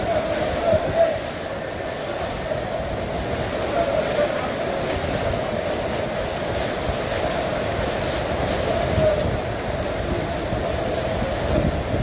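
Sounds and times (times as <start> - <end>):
floodwater rushing: 0.0 - 12.0
wind buffeting microphone: 4.7 - 12.0.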